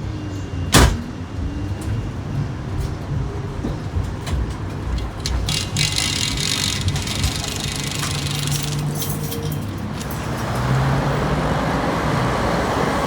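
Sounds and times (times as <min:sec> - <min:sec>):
tram rumbling: 0:00.0 - 0:13.0
clicks and rattles: 0:04.2 - 0:10.3.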